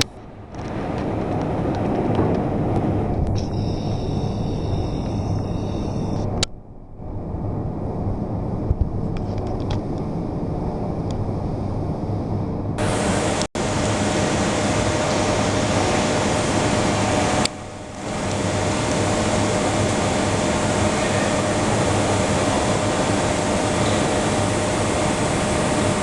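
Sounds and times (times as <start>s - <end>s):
boring machine humming: 0.0s - 26.0s
machine hiss: 3.4s - 6.2s, 12.8s - 26.0s.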